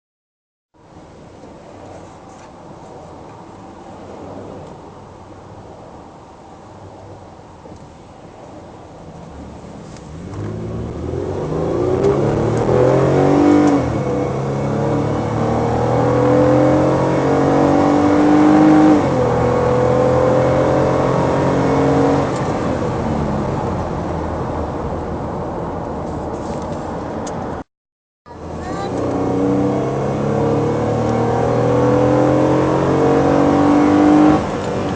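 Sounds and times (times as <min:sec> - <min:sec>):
minivan engine accelerating hard: 0:08.2 - 0:27.6, 0:28.3 - 0:34.9.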